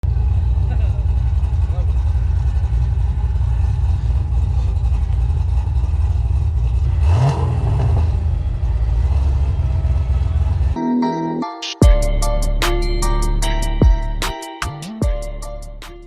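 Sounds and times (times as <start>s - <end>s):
car engine rumbling: 0.0s - 10.8s.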